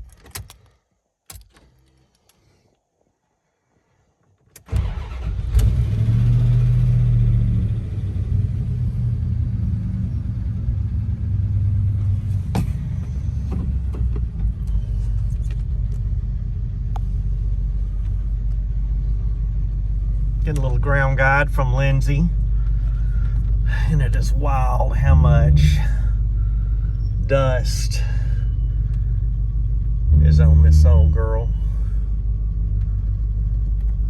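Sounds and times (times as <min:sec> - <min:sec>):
sharp clicks: 0:00.0 - 0:02.4
engine starting and idling: 0:04.6 - 0:09.3, 0:11.6 - 0:34.0.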